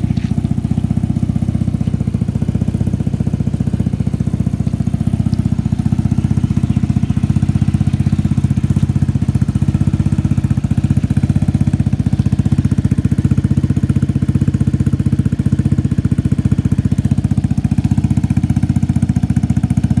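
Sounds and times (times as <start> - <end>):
scooter engine idling: 0.0 - 20.0.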